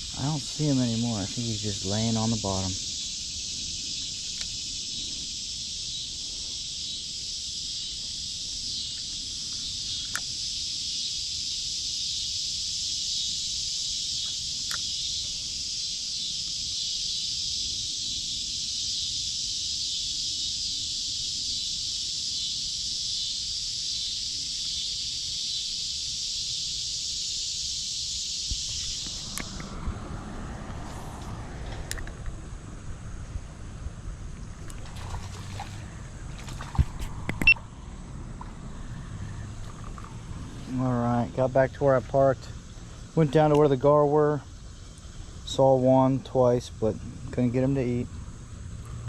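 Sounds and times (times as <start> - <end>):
low rumble of wind: 0.0 - 10.8, 28.4 - 49.0
insect high-pitched buzz: 0.0 - 49.0.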